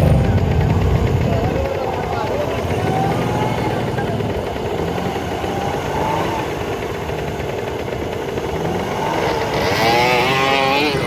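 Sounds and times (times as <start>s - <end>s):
petrol engine running: 0.0s - 11.0s.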